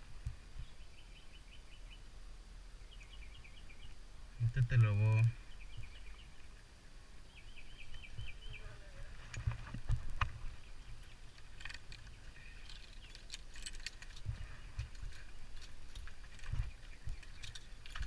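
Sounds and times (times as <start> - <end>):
bird chirping: 0.0 - 2.1, 2.7 - 9.2, 10.4 - 18.0
microphone handling rumble: 8.1 - 10.6
metal climbing gear clinking: 11.3 - 18.0.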